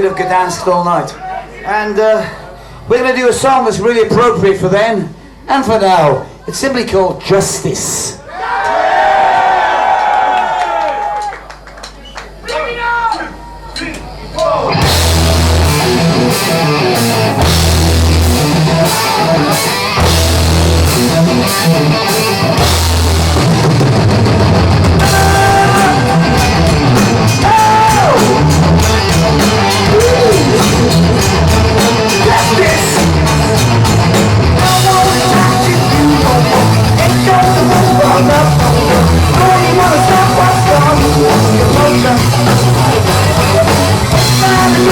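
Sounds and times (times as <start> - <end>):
heavy rock band playing live: 14.7 - 44.9.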